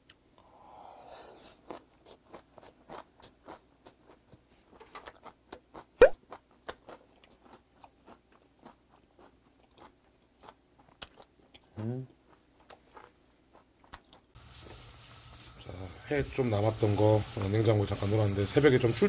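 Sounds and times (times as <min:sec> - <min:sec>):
wet chewing clicks and smacks: 0:01.6 - 0:04.4, 0:05.0 - 0:14.4.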